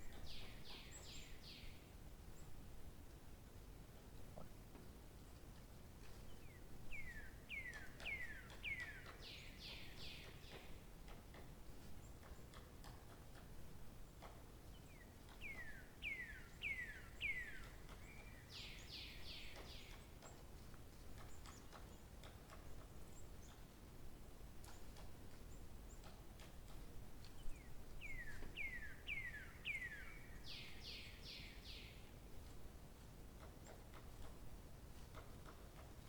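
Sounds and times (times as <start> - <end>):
songbird singing: 0.0 - 2.5, 6.1 - 11.4, 14.1 - 20.6, 24.6 - 32.2.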